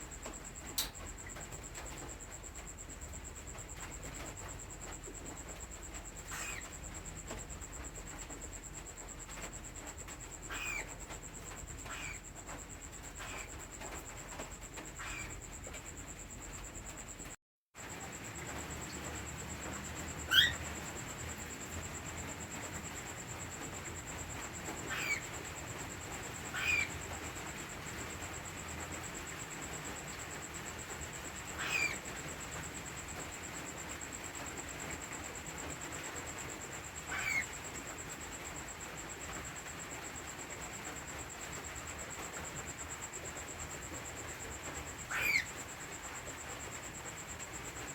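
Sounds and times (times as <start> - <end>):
cockatiels chirping: 6.3 - 6.7, 10.5 - 10.9, 11.8 - 12.2, 13.2 - 13.5, 15.0 - 15.3, 20.2 - 20.6, 24.8 - 25.3, 26.4 - 27.0, 31.6 - 32.1, 37.1 - 37.5, 45.1 - 45.5.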